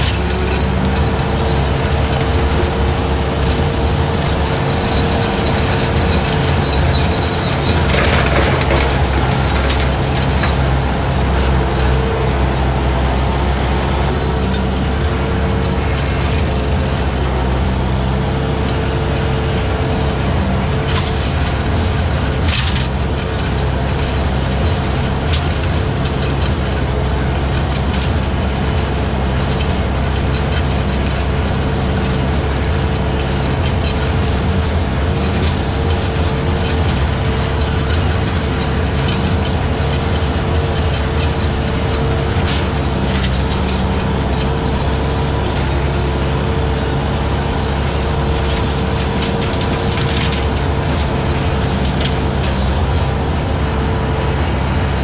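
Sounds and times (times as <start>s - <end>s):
brush cutter cutting grass: 0.0s - 14.1s
skid steer engine running: 0.0s - 14.2s, 31.4s - 55.0s.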